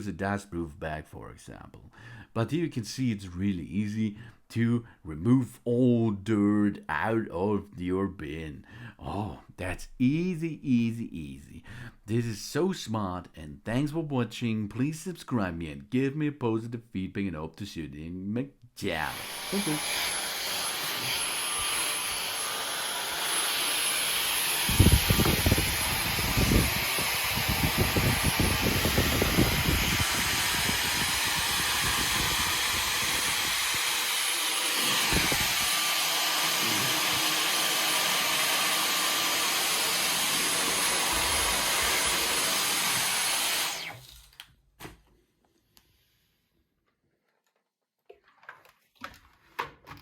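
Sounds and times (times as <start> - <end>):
vacuum cleaner motor whine: 19.1 - 44.2.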